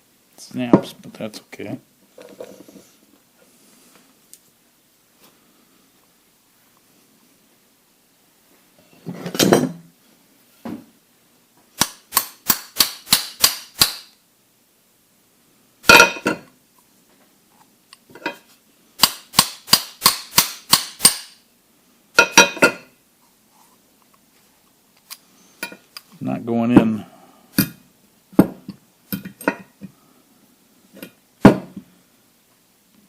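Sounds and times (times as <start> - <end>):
hammer striking metal: 19.0 - 21.4.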